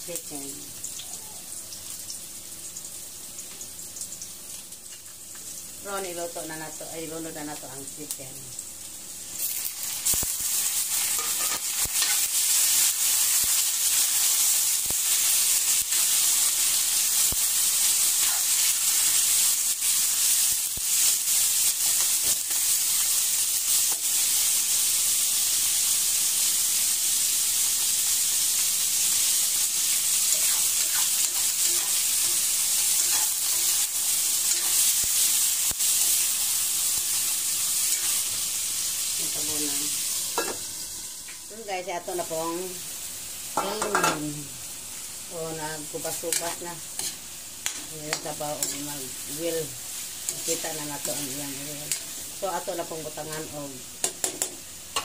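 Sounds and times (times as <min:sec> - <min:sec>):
chicken sizzling in hot oil: 0:00.0 - 0:55.0
spatula scraping a wok: 0:09.4 - 0:14.2, 0:17.8 - 0:19.5, 0:21.8 - 0:22.9, 0:29.8 - 0:38.6, 0:45.9 - 0:52.5.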